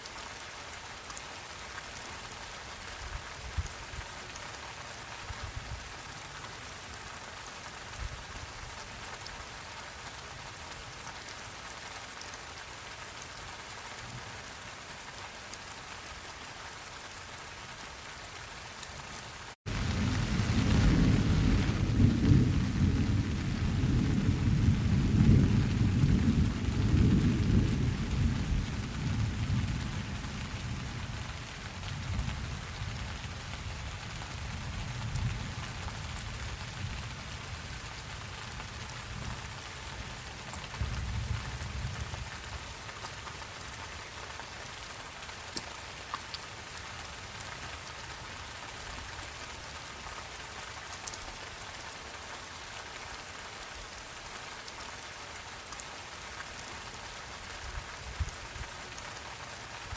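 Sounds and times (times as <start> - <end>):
steady rain: 0.0 - 59.9
thunder rumbling: 19.7 - 31.2.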